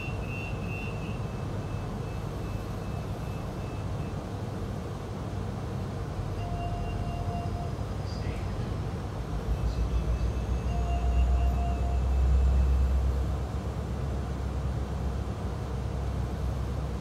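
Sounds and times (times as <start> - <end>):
faint high whine: 0.0 - 4.5, 6.3 - 8.5, 9.4 - 13.6.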